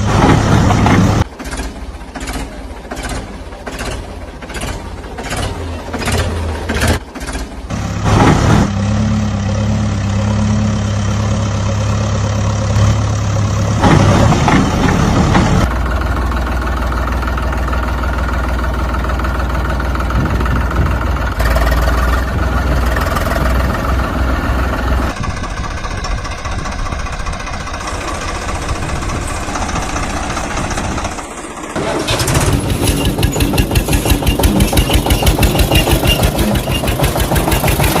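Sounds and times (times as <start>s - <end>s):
tractor engine chugging: 0.0s - 8.6s, 9.3s - 38.0s.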